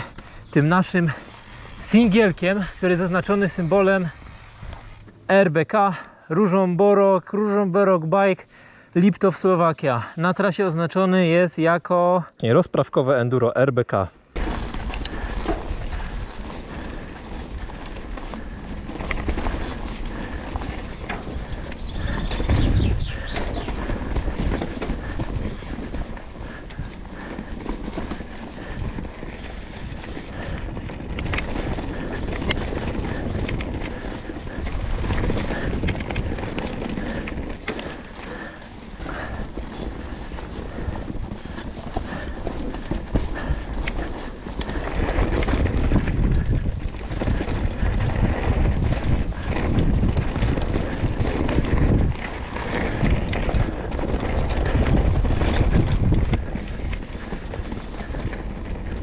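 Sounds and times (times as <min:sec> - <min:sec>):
bike clicks and rattles: 0:00.0 - 0:06.2, 0:14.3 - 0:59.0
tyres rumbling on dirt: 0:00.0 - 0:07.2, 0:14.4 - 0:59.0
wind buffeting microphone: 0:14.4 - 0:59.0.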